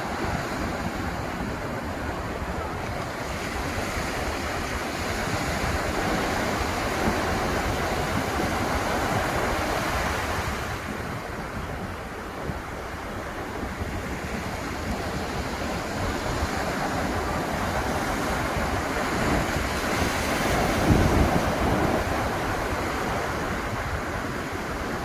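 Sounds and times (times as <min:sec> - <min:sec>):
ocean surf breaking on beach: 0:00.0 - 0:25.0.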